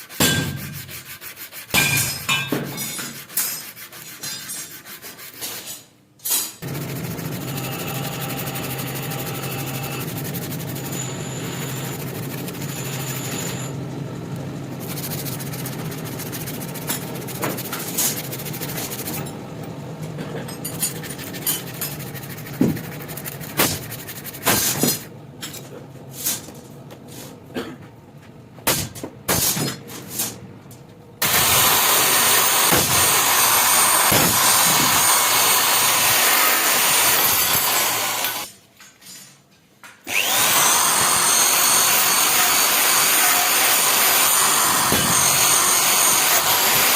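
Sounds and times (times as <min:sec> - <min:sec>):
loud grinding: 0:06.6 - 0:19.4, 0:20.3 - 0:25.1, 0:31.2 - 0:38.5, 0:40.1 - 0:46.9
power tool humming: 0:06.6 - 0:19.4, 0:31.2 - 0:38.5, 0:40.1 - 0:46.9.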